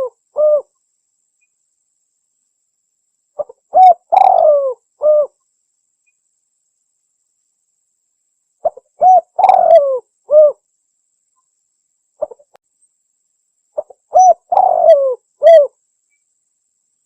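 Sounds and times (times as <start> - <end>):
dove cooing: 0.0 - 0.7, 3.4 - 5.4, 8.6 - 10.6, 12.2 - 12.5, 13.8 - 15.8.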